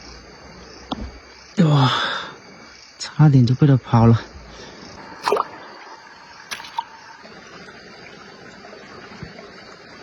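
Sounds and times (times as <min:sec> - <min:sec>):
stream water running: 0:03.9 - 0:10.0.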